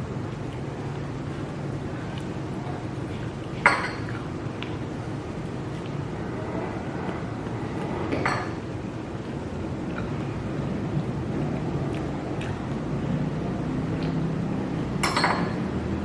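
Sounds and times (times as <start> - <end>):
low background hum: 0.0 - 16.0
tableware clinking: 3.6 - 4.1, 8.1 - 8.6, 15.0 - 15.6.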